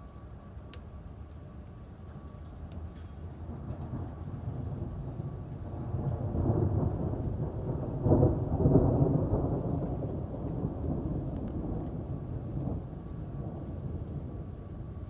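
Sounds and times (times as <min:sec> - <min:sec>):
rain falling: 0:00.0 - 0:15.0
rolling thunder: 0:03.4 - 0:15.0.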